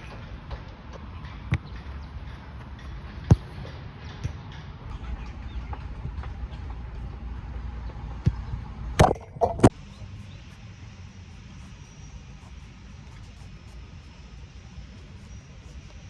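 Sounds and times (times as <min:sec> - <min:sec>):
football being struck: 0:01.4 - 0:04.4, 0:08.2 - 0:09.7.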